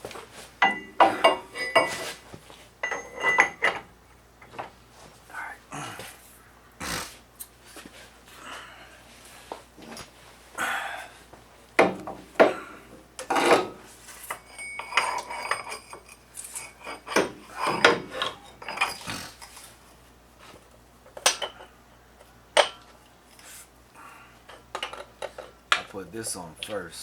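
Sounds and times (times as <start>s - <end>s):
metal tools clanking and scraping: 0.6s - 2.2s, 2.8s - 3.9s, 13.2s - 19.8s.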